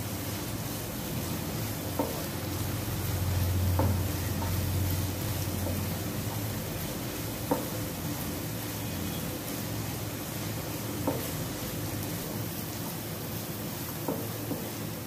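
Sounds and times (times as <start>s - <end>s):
onion and tomato sizzling in oil: 0.0s - 15.0s
spatula tapping on pan: 1.9s - 2.3s, 3.7s - 4.6s, 7.4s - 7.9s, 10.9s - 11.4s, 14.0s - 14.8s.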